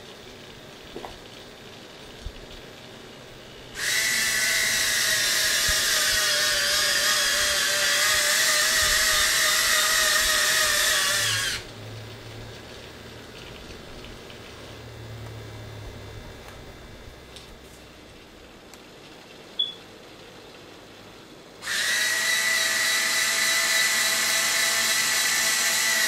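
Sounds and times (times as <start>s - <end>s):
electric gear motor whine: 3.6s - 18.0s, 21.6s - 26.0s.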